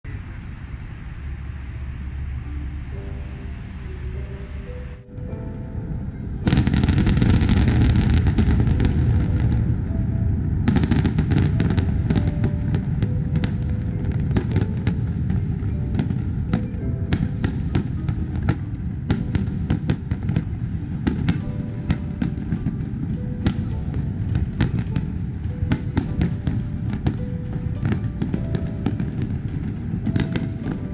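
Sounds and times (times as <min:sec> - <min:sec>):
music playing: 0:00.9 - 0:30.9
fireworks bangs and crackles: 0:06.4 - 0:30.9.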